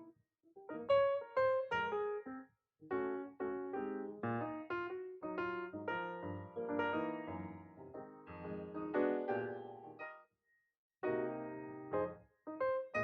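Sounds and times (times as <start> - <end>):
lively piano music: 0.0 - 10.2, 11.0 - 13.0.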